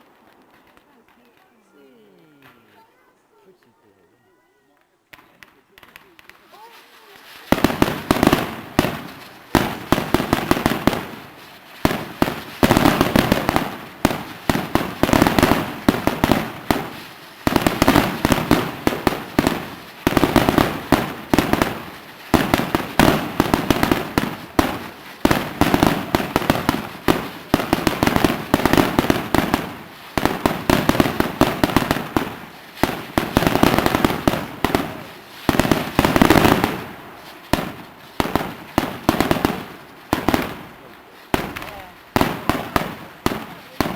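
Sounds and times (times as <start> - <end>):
fireworks bangs: 5.1 - 43.9.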